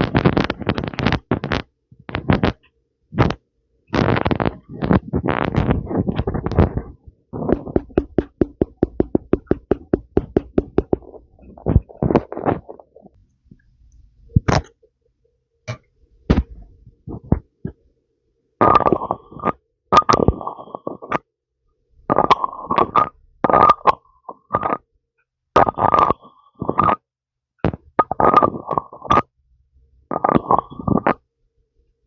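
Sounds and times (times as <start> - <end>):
lip pops: 14.4 - 14.8.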